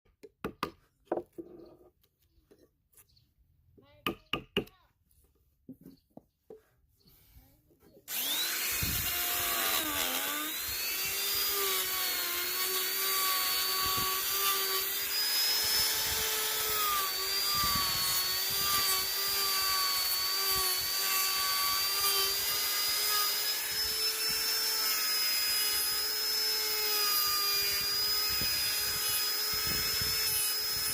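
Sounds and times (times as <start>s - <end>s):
electric carving tool whining: 8.1s - 30.9s.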